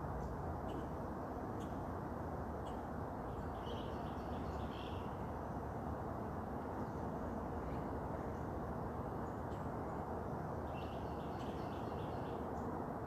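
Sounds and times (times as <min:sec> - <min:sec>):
outdoor background noise: 0:00.0 - 0:13.0
faint bird chirps: 0:02.6 - 0:05.2.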